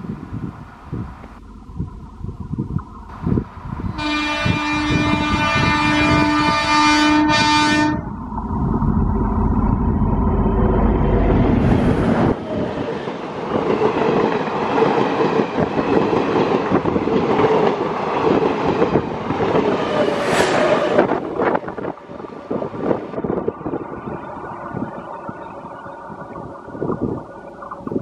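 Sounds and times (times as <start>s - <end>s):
diesel engine deep rumble: 0.4s - 3.9s, 8.0s - 12.4s.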